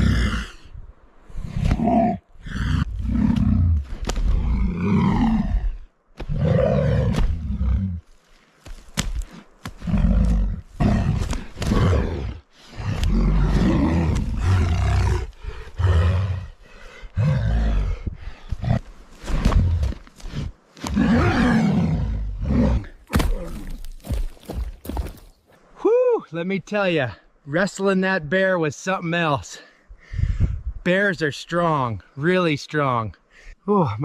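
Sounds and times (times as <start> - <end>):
bear roaring and growling: 0.0 - 8.1, 9.7 - 24.2.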